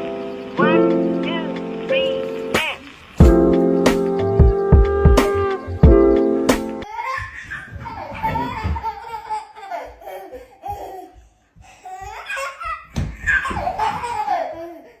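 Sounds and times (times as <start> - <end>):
high-pitched laughter: 7.1 - 10.0.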